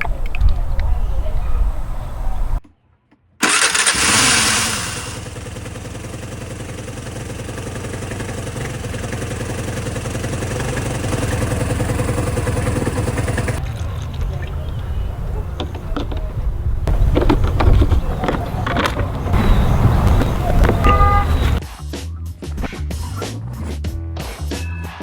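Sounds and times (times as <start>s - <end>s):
scooter engine starting and idling: 3.4s - 21.6s.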